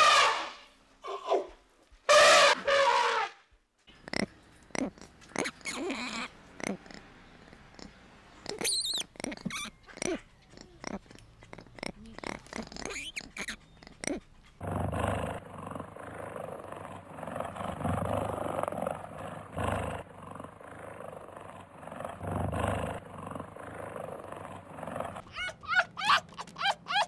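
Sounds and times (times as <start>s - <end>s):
lemur calls and clicks: 4.0s - 14.6s
cheetah growling: 4.1s - 27.0s.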